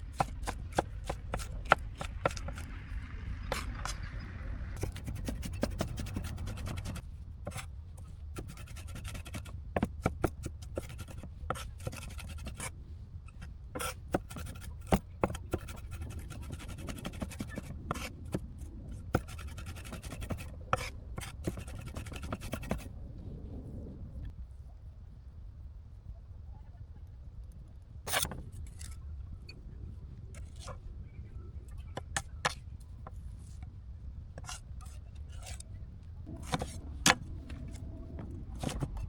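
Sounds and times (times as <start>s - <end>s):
low rumble: 0.0s - 7.3s, 22.7s - 27.1s, 35.6s - 39.0s.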